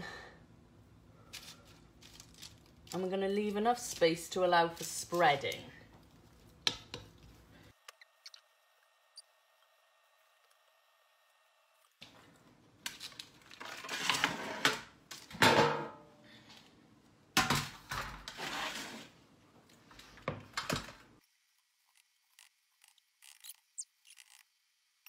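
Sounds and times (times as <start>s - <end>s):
metal trays scraping on hob: 18.3s - 19.2s.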